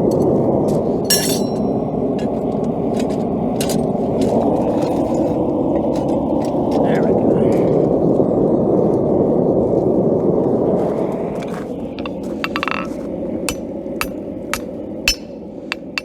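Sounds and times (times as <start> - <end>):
hammering on anvil: 12.0 - 12.9, 13.5 - 16.0
metal clinks and taps: 12.0 - 16.0.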